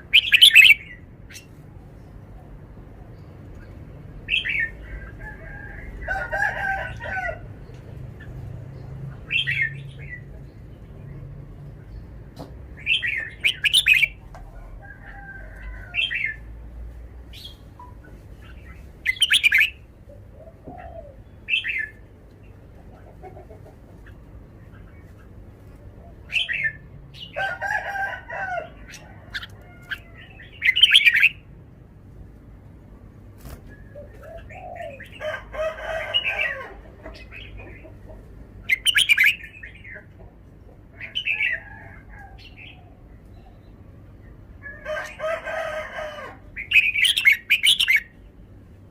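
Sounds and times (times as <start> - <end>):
bulbul singing whistled phrases: 0.1 - 1.4, 12.9 - 14.2, 38.7 - 39.8
rooster crowing: 4.9 - 7.6, 14.5 - 16.5, 27.3 - 30.5, 35.2 - 36.8, 44.6 - 46.5.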